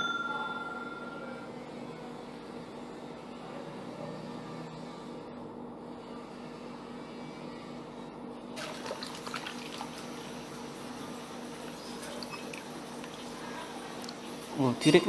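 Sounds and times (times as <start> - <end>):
low hum: 0.0 - 1.6
water splashing and dripping: 8.6 - 13.4.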